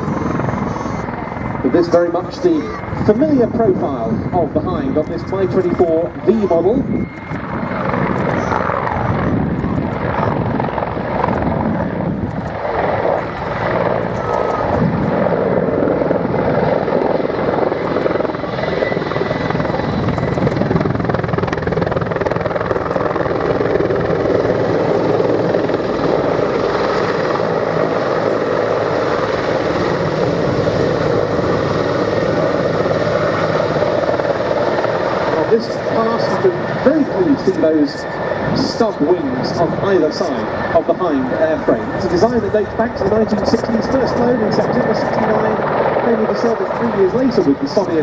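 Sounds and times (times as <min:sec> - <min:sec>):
helicopter turbines and rotor: 0:00.0 - 0:48.0.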